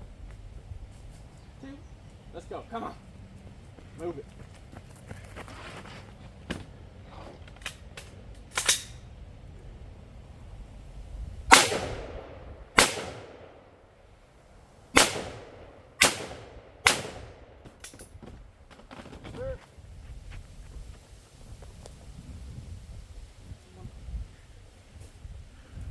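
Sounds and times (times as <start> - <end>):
gunshots echoing: 11.5 - 13.8, 14.9 - 17.9.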